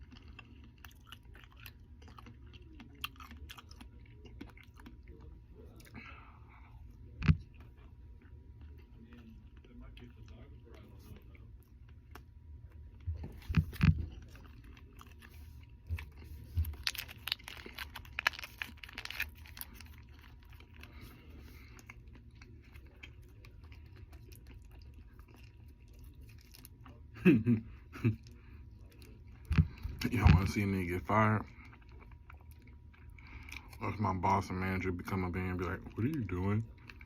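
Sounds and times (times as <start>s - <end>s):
crunchy chewing and biting: 0.0s - 27.1s.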